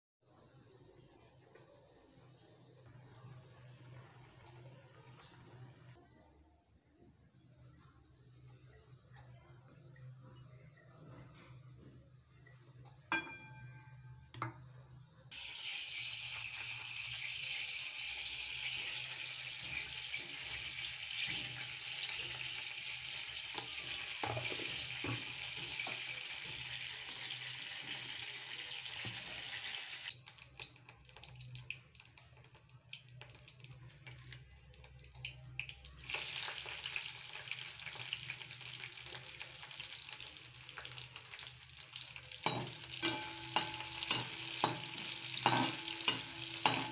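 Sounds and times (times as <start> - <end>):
hot oil sizzling: 15.3 - 46.9.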